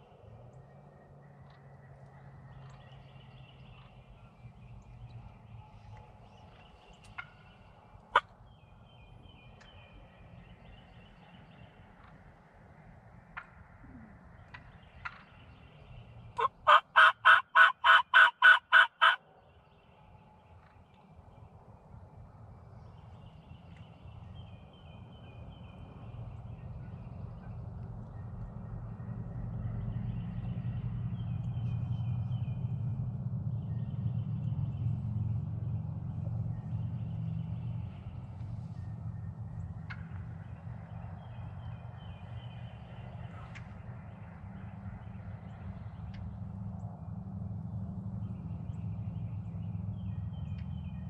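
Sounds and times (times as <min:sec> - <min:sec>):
distant turkeys gobbling: 0:16.4 - 0:19.2.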